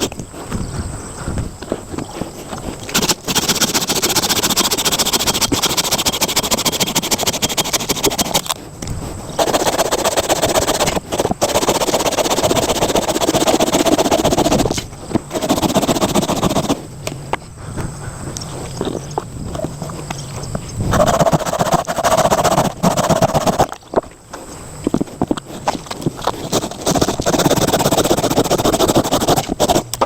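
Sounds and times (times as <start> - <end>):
saw cutting firewood: 0.0 - 0.2, 1.7 - 16.8, 21.0 - 23.8, 26.2 - 30.0.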